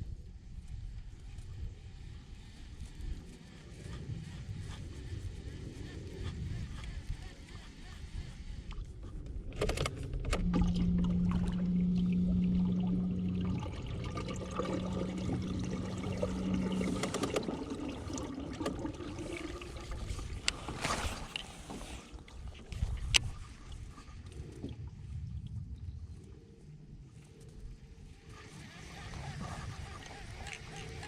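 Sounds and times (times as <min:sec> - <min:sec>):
steady low hum: 0:00.0 - 0:31.0
water sloshing against kayak: 0:07.5 - 0:25.4, 0:28.1 - 0:31.0.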